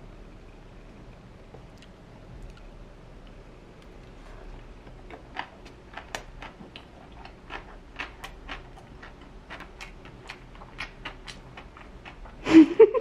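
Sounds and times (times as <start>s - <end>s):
wet chewing mouth sounds: 4.0s - 12.4s.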